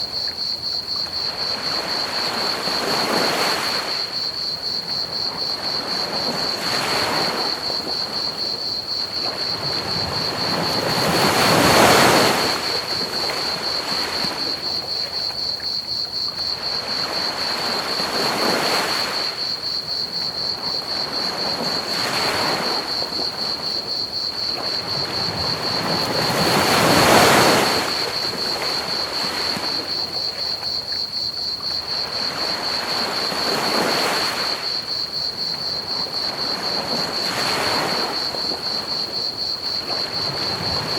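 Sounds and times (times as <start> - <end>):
crickets trilling: 0.0 - 40.9
ocean waves breaking: 9.1 - 14.8, 20.4 - 30.6, 31.9 - 40.9.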